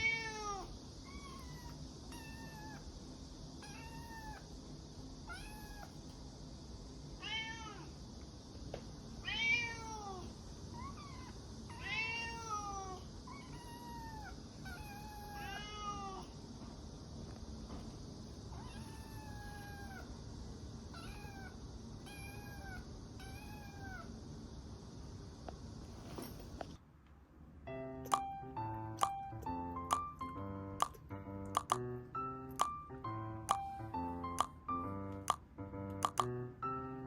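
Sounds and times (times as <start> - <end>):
kitten meowing: 0.0 - 2.9, 3.6 - 4.4, 5.3 - 6.0, 10.8 - 16.3, 18.6 - 20.1, 21.0 - 24.1.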